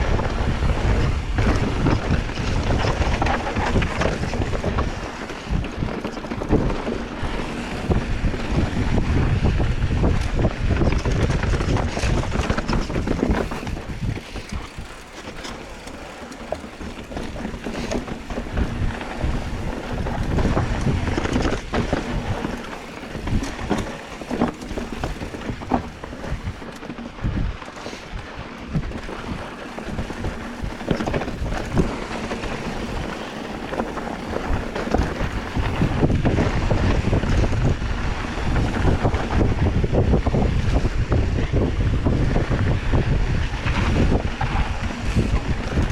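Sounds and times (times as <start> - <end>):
rumble: 0.0 - 45.9
wind buffeting microphone: 0.0 - 45.9.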